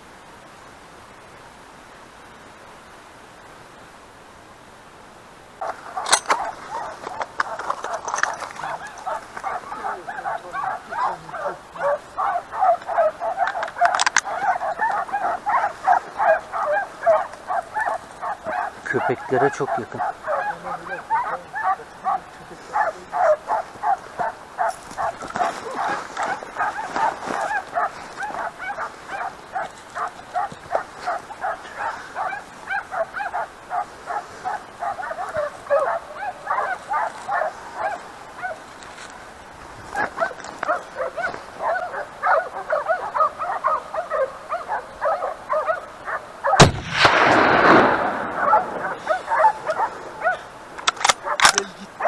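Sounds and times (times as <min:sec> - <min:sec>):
hunting dogs barking and baying: 0:01.8 - 0:52.0
rifle shot with echo: 0:46.6 - 0:49.8.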